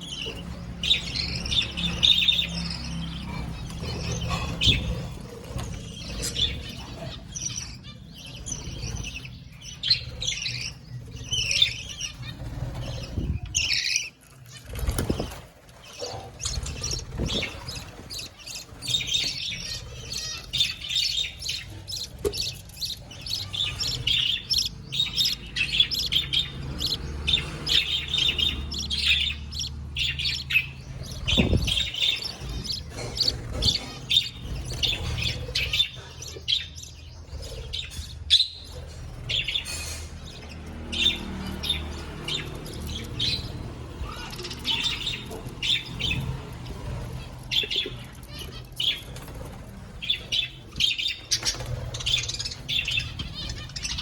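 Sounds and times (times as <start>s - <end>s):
budgerigars chirping: 0.0s - 54.0s
wing flapping: 14.6s - 15.8s.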